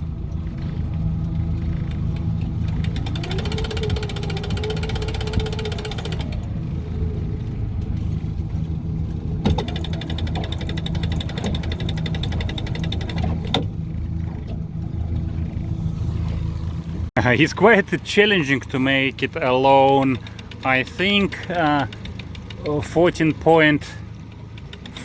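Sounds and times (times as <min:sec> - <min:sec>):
outboard motor running: 0:00.0 - 0:25.0
sharp clicks: 0:02.2 - 0:06.5, 0:24.3 - 0:25.0
electric motor whining: 0:02.8 - 0:07.0.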